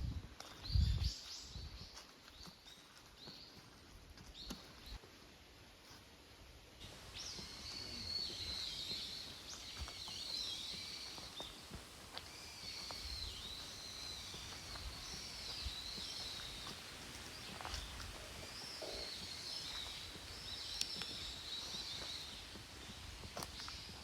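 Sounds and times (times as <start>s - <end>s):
birds singing: 6.8s - 24.0s.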